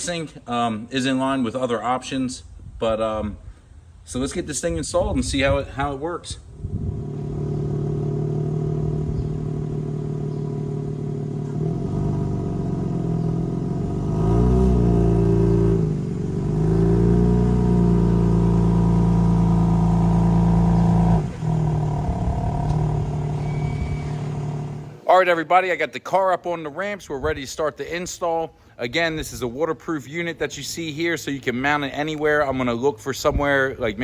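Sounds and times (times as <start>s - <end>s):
car exhaust at low revs: 6.4s - 25.0s.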